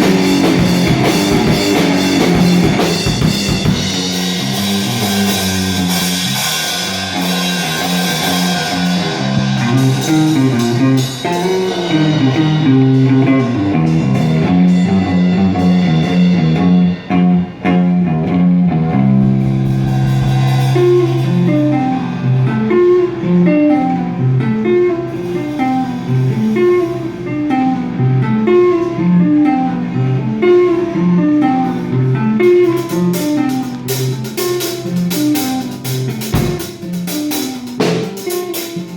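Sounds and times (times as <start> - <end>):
drums: 0.0 - 29.0, 30.4 - 38.9
bass guitar: 0.0 - 38.9
guitar picking a riff: 0.0 - 38.9
cymbals: 18.9 - 23.0.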